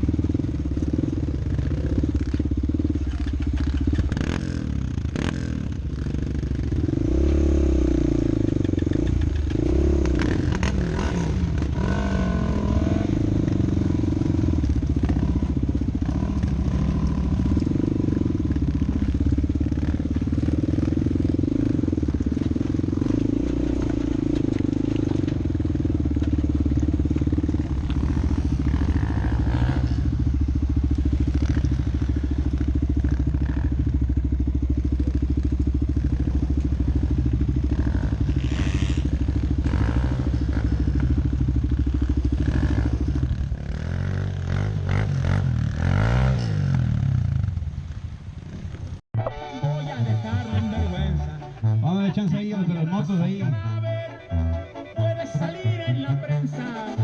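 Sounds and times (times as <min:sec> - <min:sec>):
off-road vehicle engine revving: 0:00.0 - 0:47.6.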